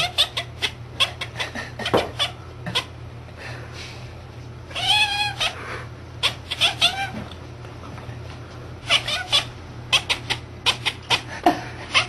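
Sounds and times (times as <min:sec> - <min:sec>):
cat chirping: 0:00.0 - 0:02.9, 0:04.7 - 0:05.6, 0:06.2 - 0:07.2, 0:08.8 - 0:11.3
cat meowing: 0:04.7 - 0:05.6, 0:06.2 - 0:07.2, 0:08.8 - 0:11.2.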